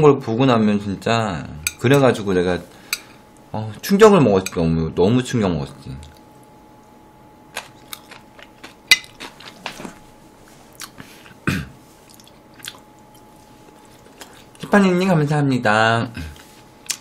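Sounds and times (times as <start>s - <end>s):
faint thin humming tone: 0.2s - 17.0s
crunchy chewing and biting: 7.5s - 10.0s.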